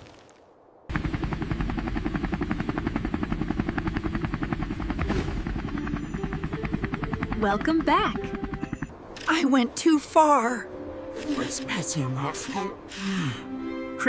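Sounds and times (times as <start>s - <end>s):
helicopter rotor chopping: 0.9s - 9.5s.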